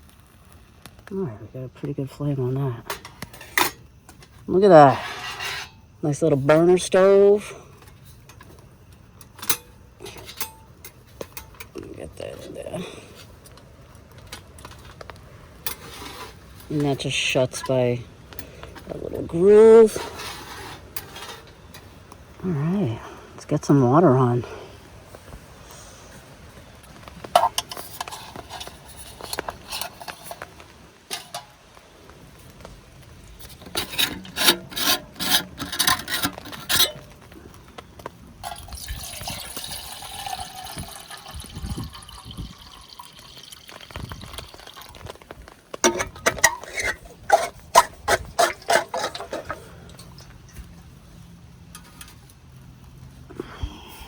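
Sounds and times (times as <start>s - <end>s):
pot and gear clattering: 9.2s - 11.9s, 27.2s - 31.6s, 33.4s - 37.3s, 38.4s - 45.2s, 45.8s - 50.6s
water pouring into pot: 38.4s - 45.2s.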